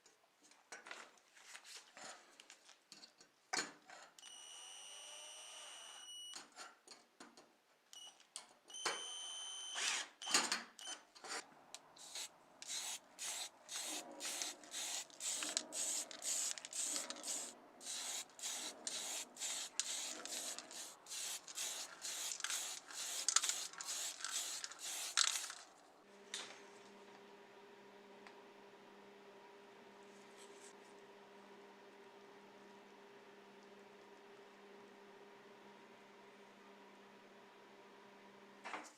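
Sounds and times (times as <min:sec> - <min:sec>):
scraping strokes: 0:12.0 - 0:25.6.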